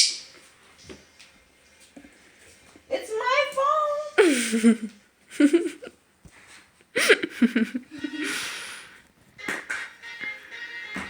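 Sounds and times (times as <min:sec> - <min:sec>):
person laughing: 0:04.2 - 0:05.9, 0:07.0 - 0:08.7.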